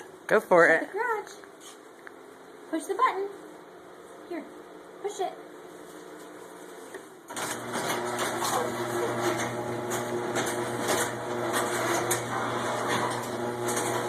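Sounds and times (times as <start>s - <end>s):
garage door opener motor hum: 7.3s - 14.0s.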